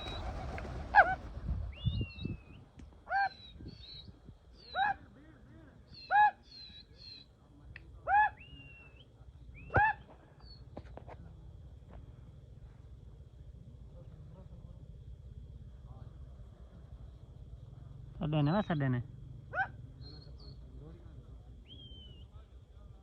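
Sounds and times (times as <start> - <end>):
bird calls rising and falling: 0.0 - 5.0
high chirps and whistles: 1.7 - 4.9, 21.6 - 22.4.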